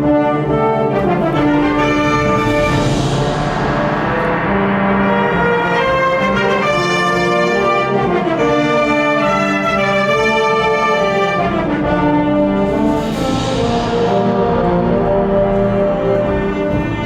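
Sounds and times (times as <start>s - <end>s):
wind band playing chords: 0.0s - 17.0s
bright hiss-like shimmer: 1.1s - 7.6s.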